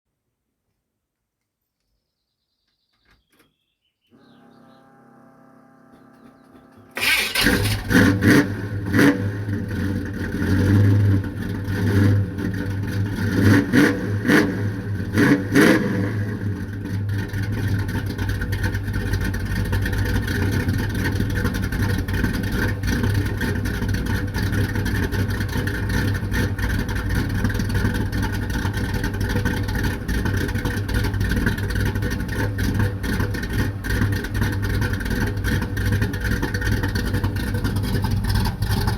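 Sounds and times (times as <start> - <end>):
starter motor whine: 4.1 - 8.8
car engine revving and idling: 4.2 - 38.9.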